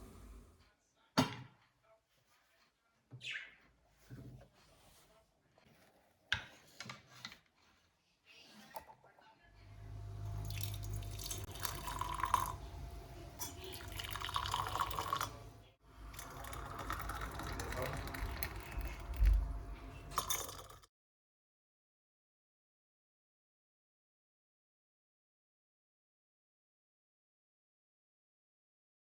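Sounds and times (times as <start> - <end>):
tap water running into sink: 9.8 - 20.8.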